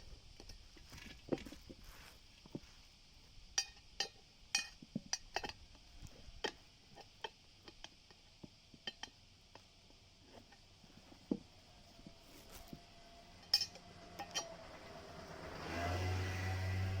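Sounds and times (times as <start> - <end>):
metal tools clinking: 13.3 - 14.7.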